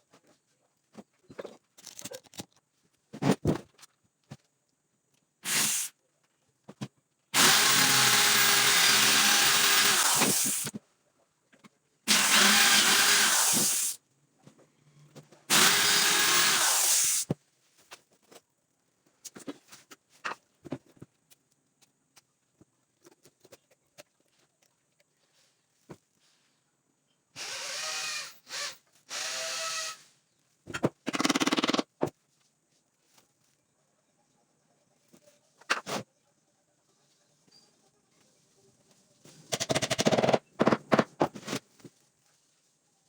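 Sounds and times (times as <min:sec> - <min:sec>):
electric power tool running: 0:07.4 - 0:10.7, 0:12.1 - 0:14.0, 0:15.5 - 0:17.2.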